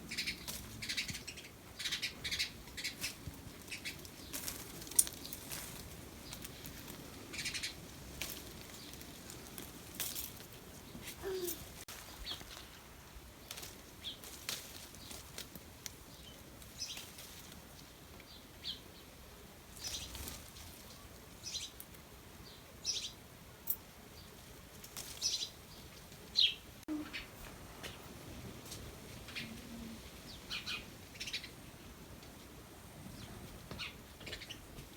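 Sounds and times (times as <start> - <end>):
birds chirping: 0.0 - 4.5, 6.1 - 7.9, 22.4 - 24.4, 25.2 - 28.1, 29.2 - 32.0, 33.0 - 34.9.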